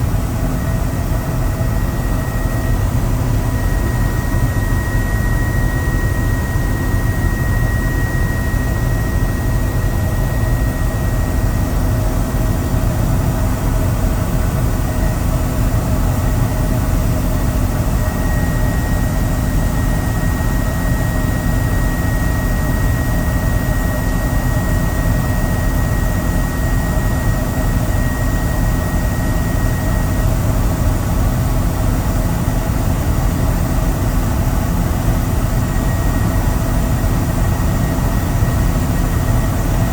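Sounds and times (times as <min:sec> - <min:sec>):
thin high whine: 0:00.0 - 0:13.3
helicopter engine and rotor noise: 0:00.0 - 0:39.9.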